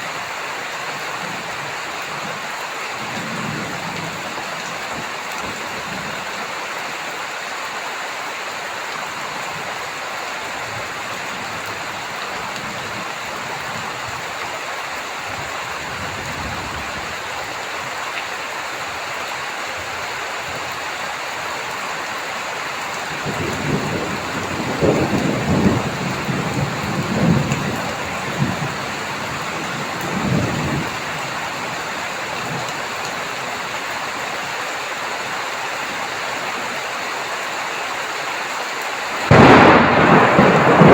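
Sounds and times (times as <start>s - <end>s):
heavy rain hissing: 0.0s - 40.9s
thunder rumbling: 23.1s - 31.2s, 39.2s - 40.9s.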